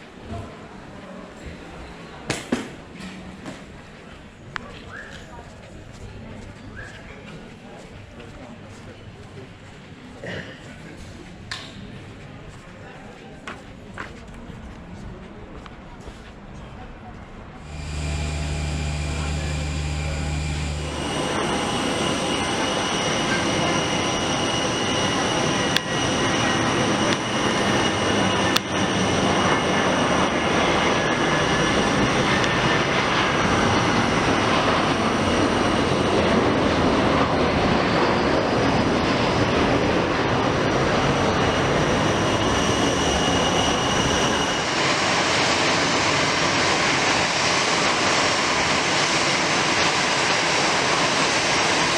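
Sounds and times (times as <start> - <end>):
low hum: 17.6 - 25.6
jet engines roaring: 17.6 - 51.9.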